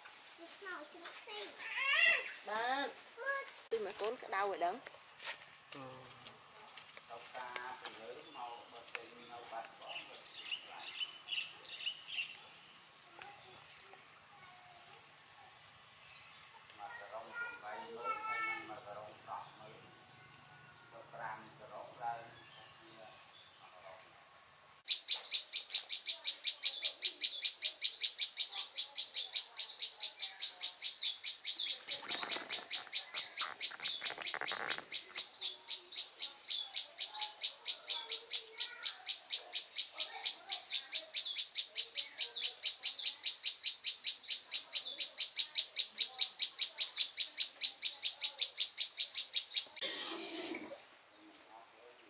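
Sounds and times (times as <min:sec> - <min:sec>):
bird chirping: 0:07.4 - 0:24.0, 0:24.9 - 0:52.0.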